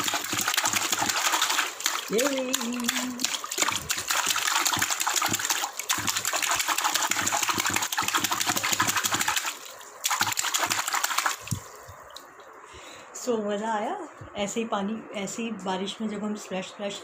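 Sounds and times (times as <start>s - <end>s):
hands splashing in water: 0.0s - 12.3s.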